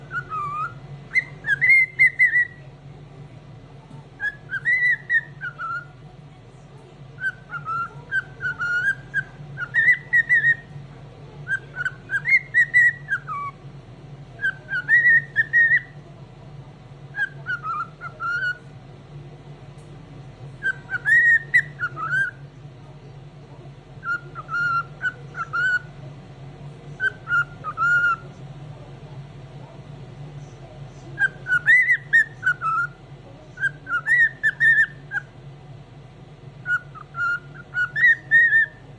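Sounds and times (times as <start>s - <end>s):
cockatiel whistling song: 0.0s - 2.6s, 4.2s - 6.0s, 7.2s - 10.8s, 11.4s - 13.6s, 14.4s - 16.0s, 17.1s - 18.6s, 20.6s - 22.4s, 24.0s - 25.9s, 27.0s - 28.2s, 31.2s - 33.0s, 33.6s - 35.3s, 36.6s - 38.8s
steady low hum: 0.0s - 38.9s.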